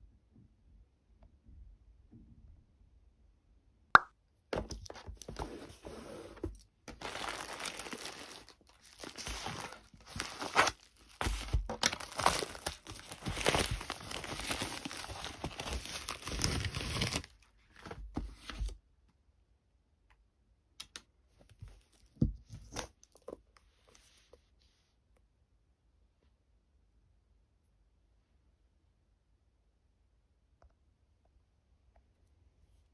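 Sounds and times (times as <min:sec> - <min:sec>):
packaging crinkling and tearing: 0:06.5 - 0:18.0.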